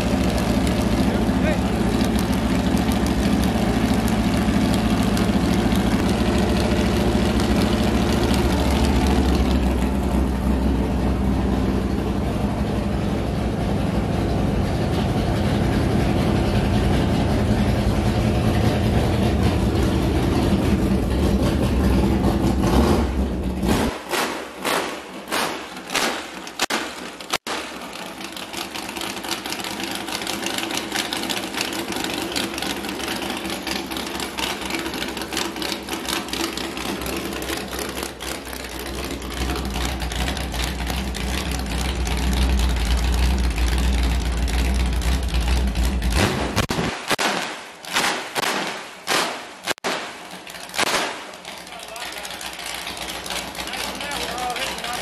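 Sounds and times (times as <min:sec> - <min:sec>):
engine idling with deep rumble: 0:00.0 - 0:24.0, 0:25.2 - 0:46.7, 0:50.2 - 0:55.0
sharp exhaust pops: 0:23.6 - 0:28.9, 0:45.8 - 0:54.1.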